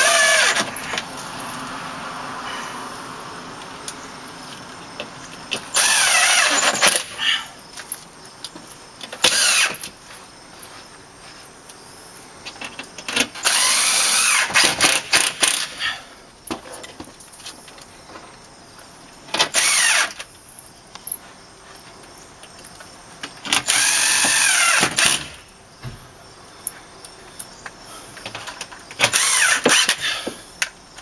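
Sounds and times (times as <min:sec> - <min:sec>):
cordless drill driving screws: 0:00.0 - 0:01.0, 0:05.6 - 0:07.2, 0:09.2 - 0:09.9, 0:13.3 - 0:15.8, 0:19.4 - 0:20.2, 0:23.6 - 0:25.4, 0:29.0 - 0:30.3.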